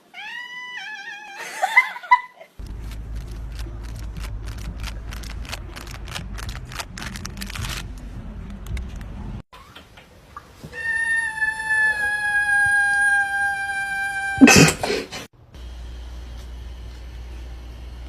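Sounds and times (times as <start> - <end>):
steady low rumble: 2.6 - 9.4.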